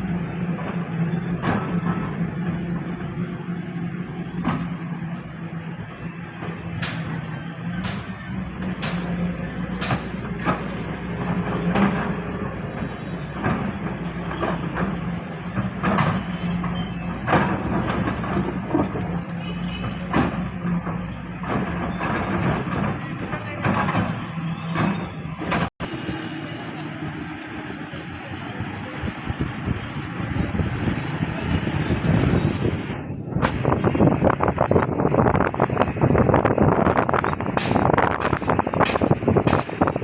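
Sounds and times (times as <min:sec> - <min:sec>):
heavy diesel machinery running: 0:00.0 - 0:40.0
metal knocks and clanks: 0:04.2 - 0:25.7, 0:37.0 - 0:40.0.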